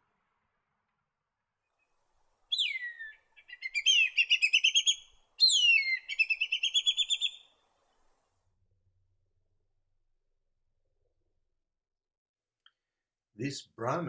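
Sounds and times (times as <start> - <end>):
kite whistling calls: 2.5 - 7.4.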